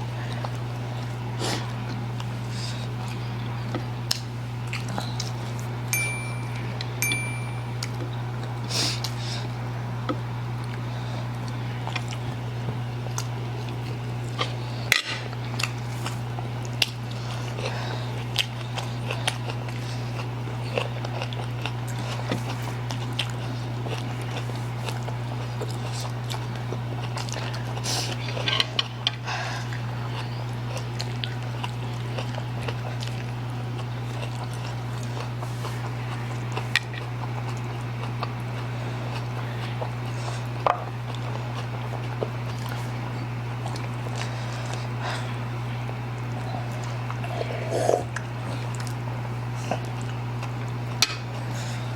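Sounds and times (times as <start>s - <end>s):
chewing: 0.0s - 5.8s, 10.6s - 51.9s
low hum: 5.9s - 8.2s
slurping noodles: 46.9s - 48.8s.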